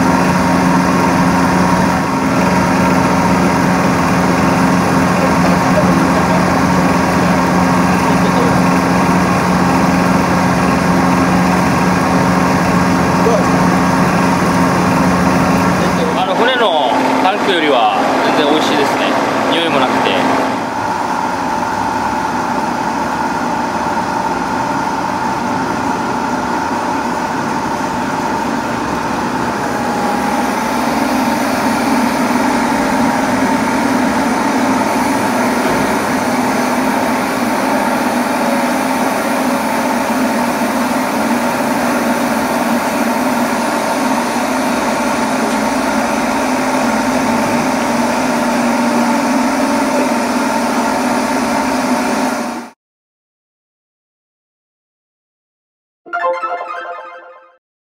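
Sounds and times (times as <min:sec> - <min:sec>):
motor droning: 0:00.0 - 0:50.9.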